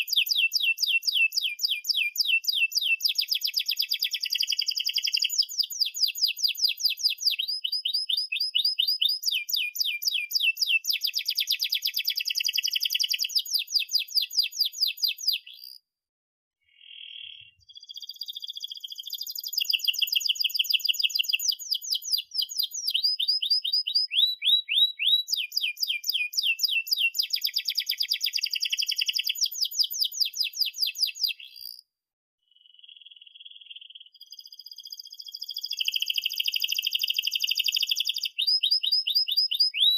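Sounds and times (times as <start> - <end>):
canary singing trills: 0.0 - 15.8, 16.6 - 31.8, 32.5 - 39.9.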